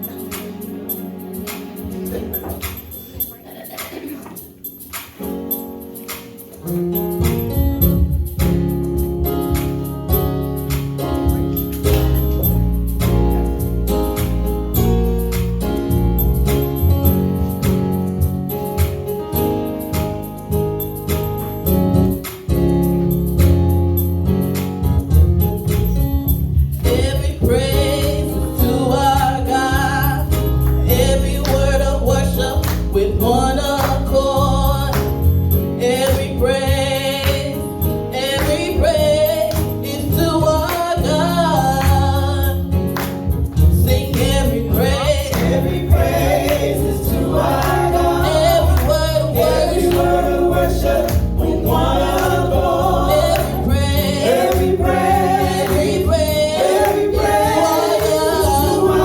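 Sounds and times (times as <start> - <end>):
gospel choir singing: 0.0 - 3.0, 26.4 - 59.0
band with bass drums and keyboard: 0.0 - 59.0.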